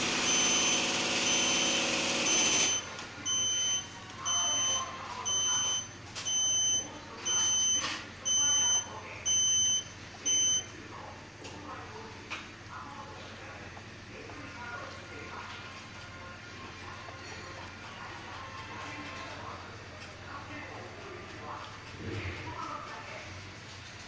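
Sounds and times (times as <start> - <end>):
electronic beeper beeping: 0.0 - 10.7.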